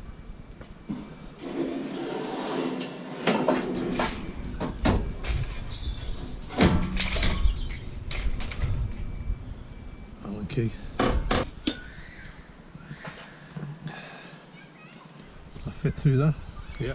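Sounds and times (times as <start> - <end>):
metal scraping and sliding: 0.9 - 8.7
scrap metal knocks and clanks: 1.0 - 8.8.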